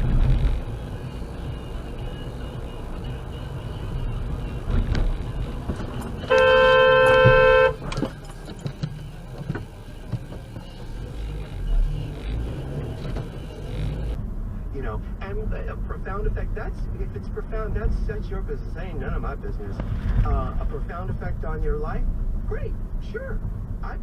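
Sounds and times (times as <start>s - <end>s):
road and engine rumble: 0.0s - 24.0s
car horn honking: 5.7s - 8.0s.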